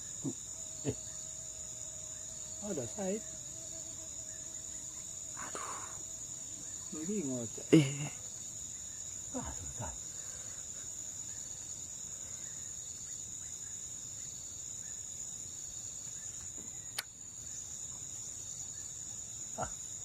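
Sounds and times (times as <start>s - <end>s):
high-pitched insect chorus: 0.0s - 20.0s
sharp click: 16.9s - 17.2s.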